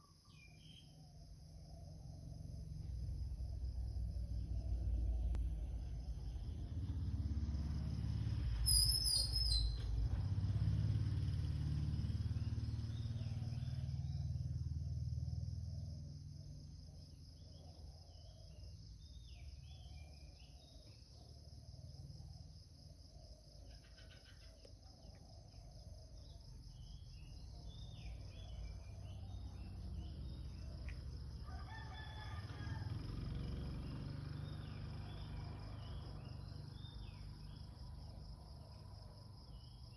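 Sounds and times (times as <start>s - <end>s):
bird calls: 8.7s - 10.0s, 23.6s - 31.2s.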